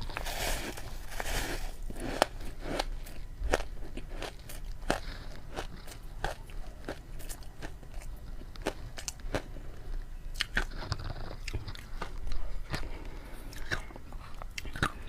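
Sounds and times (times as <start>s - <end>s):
ice being crunched: 0.0s - 2.3s.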